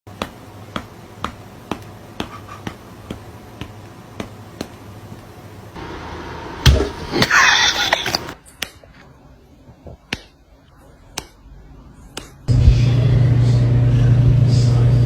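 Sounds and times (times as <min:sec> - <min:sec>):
heavy thump: 0:06.6 - 0:07.1.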